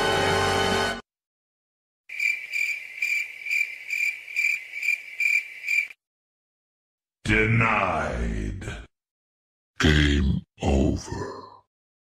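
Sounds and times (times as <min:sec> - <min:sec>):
crickets chirping: 0:02.1 - 0:06.0.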